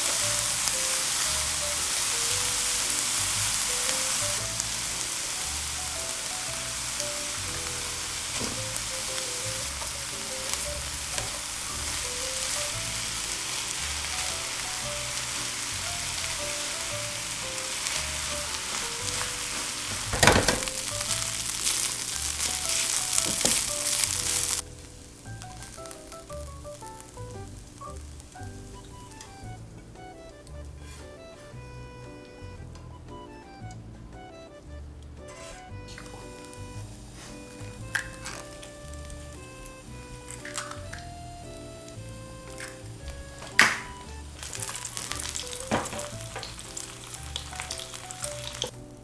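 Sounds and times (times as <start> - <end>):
food sizzling in a pan: 0.0 - 29.4, 35.3 - 41.2, 41.8 - 49.0
light background music: 0.0 - 49.0
stirring in a pan: 0.1 - 26.8.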